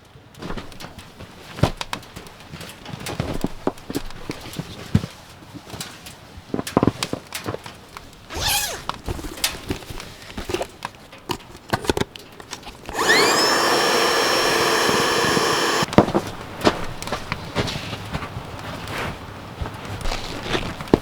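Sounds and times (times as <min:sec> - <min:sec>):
small electric motor whining: 0:08.3 - 0:08.9, 0:12.9 - 0:15.9.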